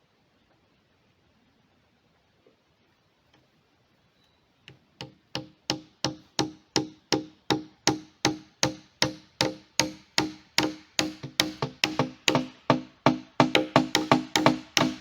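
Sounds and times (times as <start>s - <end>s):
hammer blows ringing: 5.4s - 15.0s.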